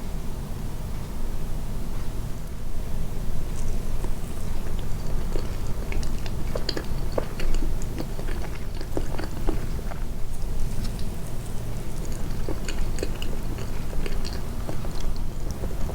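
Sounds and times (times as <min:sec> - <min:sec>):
wet chewing mouth clicks: 0:04.0 - 0:15.9.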